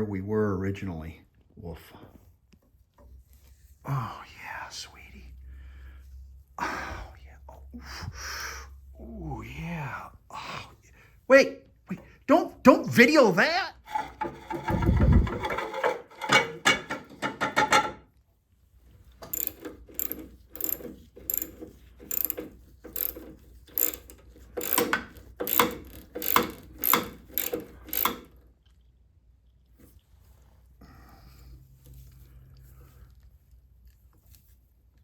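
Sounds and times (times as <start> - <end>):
metal parts clattering: 13.9 - 18.0, 19.3 - 28.3
ratchet wrench clicking: 19.2 - 28.4.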